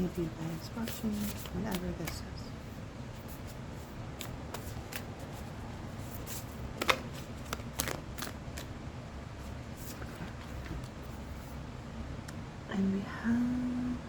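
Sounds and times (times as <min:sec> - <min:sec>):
cards being shuffled by hand: 0:00.2 - 0:02.2, 0:03.1 - 0:08.7.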